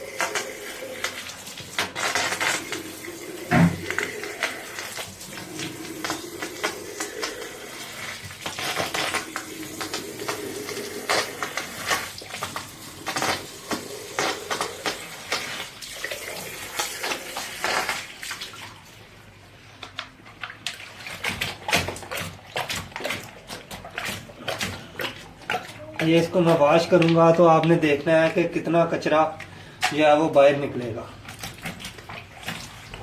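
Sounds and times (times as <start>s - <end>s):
water splashing and running: 0.0s - 19.0s, 31.2s - 33.0s.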